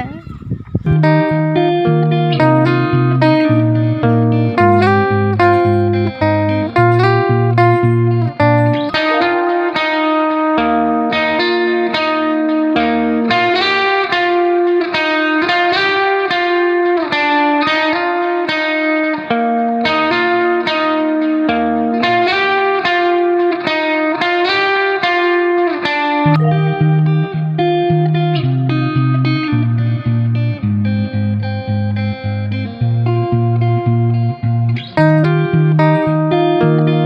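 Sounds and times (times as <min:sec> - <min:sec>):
picked guitar instrumental: 0:00.0 - 0:37.0
bass line: 0:00.7 - 0:09.6, 0:26.3 - 0:36.9.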